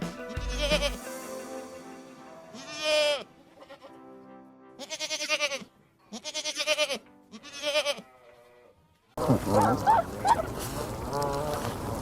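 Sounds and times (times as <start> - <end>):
background music: 0.0 - 8.0
livestock bleating: 0.4 - 1.0, 2.5 - 4.0, 4.8 - 8.8.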